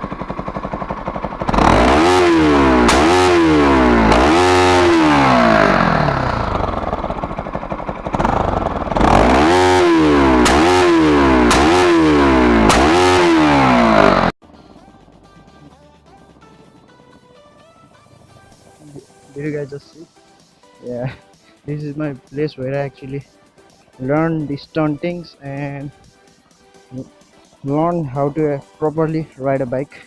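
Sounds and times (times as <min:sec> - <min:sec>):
exhaust cracks: 0:00.0 - 0:14.4
motorcycle engine revving: 0:00.0 - 0:14.4.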